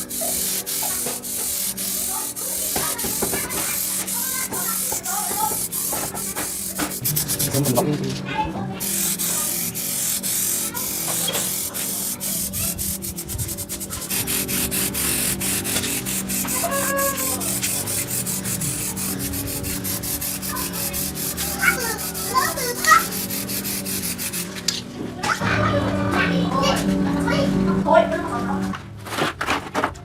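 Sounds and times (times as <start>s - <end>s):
sanding metal rasping scrape: 0.0s - 8.0s, 8.8s - 24.8s
steady low hum: 3.8s - 29.0s.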